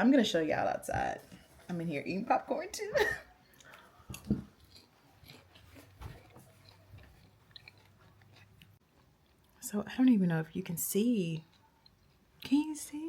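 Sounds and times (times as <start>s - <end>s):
popcorn being chewed: 3.4s - 13.0s.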